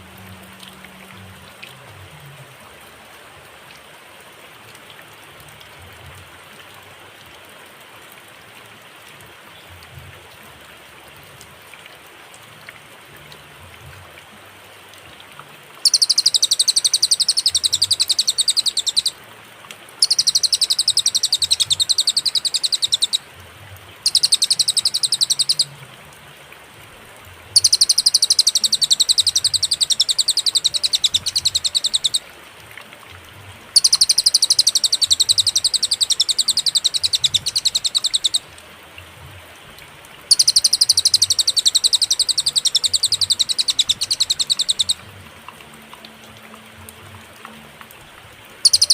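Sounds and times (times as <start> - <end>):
faint steady hiss: 0.0 - 48.9
bird rapid trilled song: 15.8 - 19.2, 20.0 - 23.2, 24.0 - 25.7, 27.6 - 32.2, 33.8 - 38.5, 40.3 - 45.0, 48.6 - 48.9.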